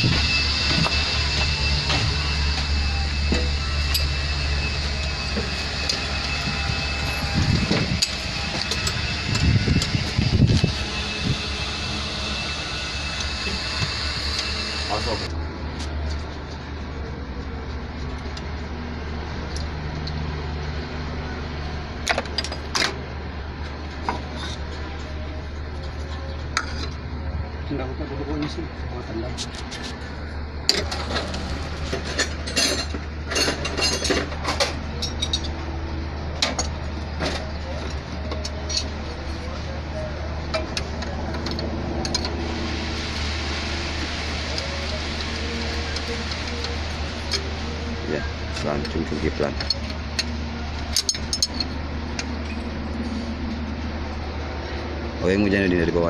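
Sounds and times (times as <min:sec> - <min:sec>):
engine droning: 0:00.0 - 0:56.0
hand tools clinking on metal: 0:32.0 - 0:35.5, 0:48.6 - 0:51.8.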